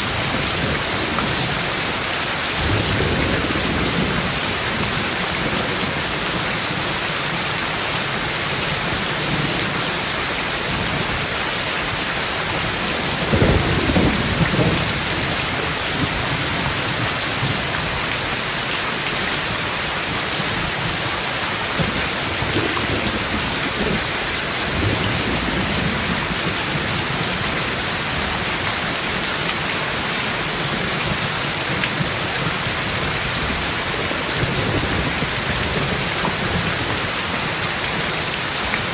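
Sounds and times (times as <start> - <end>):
steady rain falling: 0.0 - 38.9
thunder: 2.6 - 6.0, 13.0 - 17.7.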